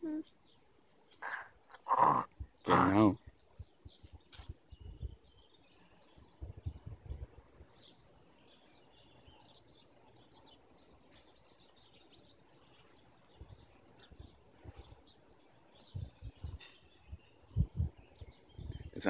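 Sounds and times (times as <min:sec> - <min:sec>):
faint bird chirps: 0:00.0 - 0:19.0
soft low thumps: 0:06.4 - 0:07.6, 0:15.9 - 0:16.5, 0:17.2 - 0:19.0.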